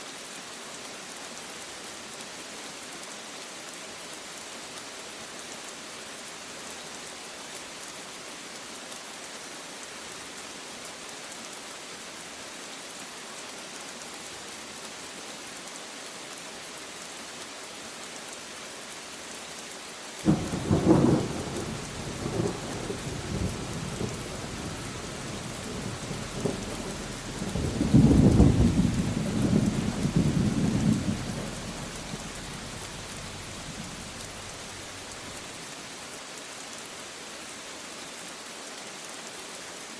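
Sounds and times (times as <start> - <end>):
rain hissing: 20.0 - 37.6
thunder crack and rumble: 20.3 - 35.2.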